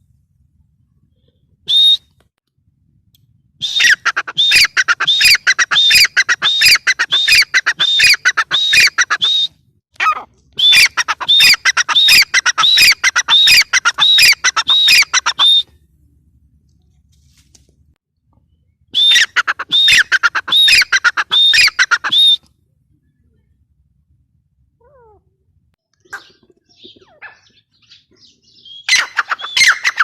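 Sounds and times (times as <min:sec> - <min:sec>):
francolin calling: 0:10.6 - 0:15.6, 0:26.0 - 0:30.0.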